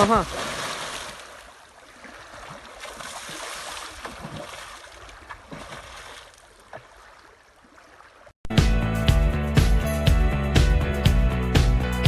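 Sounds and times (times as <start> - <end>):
water churning and lapping: 0.0 - 8.4
small splashes and drips: 0.3 - 8.3.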